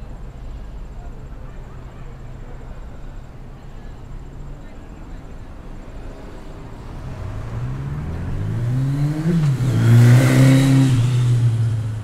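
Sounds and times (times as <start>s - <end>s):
engine revving: 6.9s - 12.0s.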